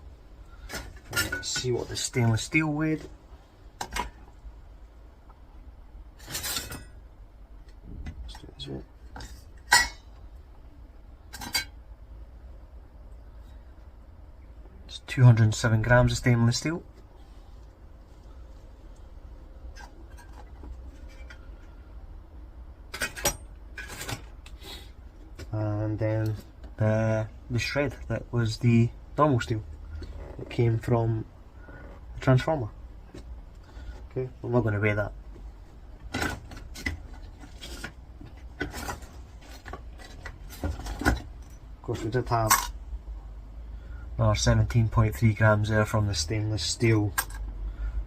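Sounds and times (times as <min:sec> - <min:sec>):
scrap metal rustles and knocks: 0:00.6 - 0:03.2, 0:19.7 - 0:21.8, 0:36.0 - 0:42.7
scrap metal clinking: 0:06.2 - 0:07.0.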